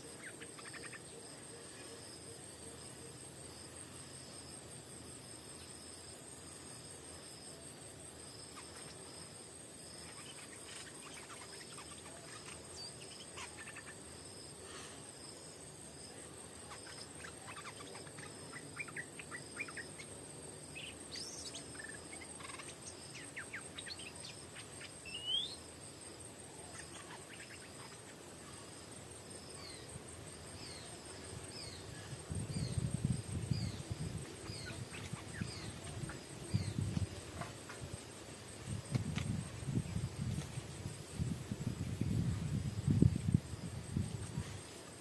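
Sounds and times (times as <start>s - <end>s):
insects buzzing: 0.0s - 45.0s
songbirds chirping and whistling: 10.0s - 14.1s, 16.6s - 25.7s, 29.4s - 37.7s.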